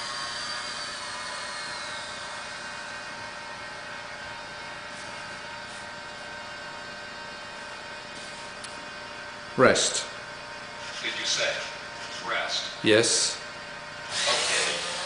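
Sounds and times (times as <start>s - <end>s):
servo motors whining: 14.1s - 15.0s.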